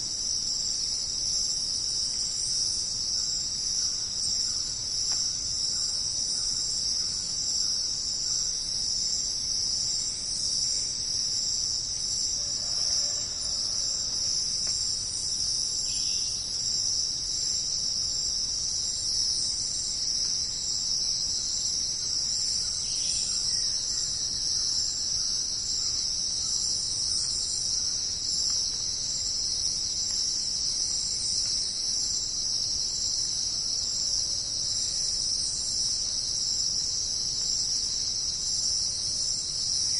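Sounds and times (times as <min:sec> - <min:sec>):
insect chorus trilling: 0:00.0 - 0:39.9.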